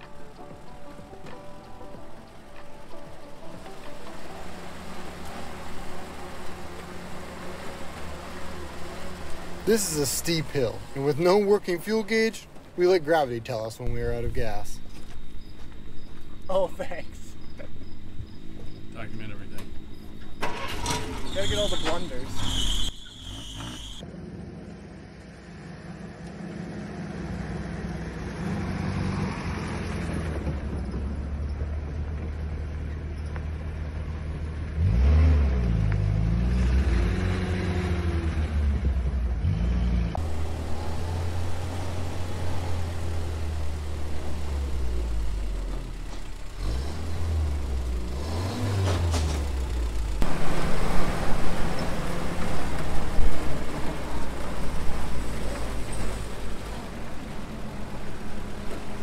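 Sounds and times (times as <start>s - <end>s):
jeep engine revving: 0.1s - 12.4s, 18.5s - 24.0s, 34.6s - 59.0s.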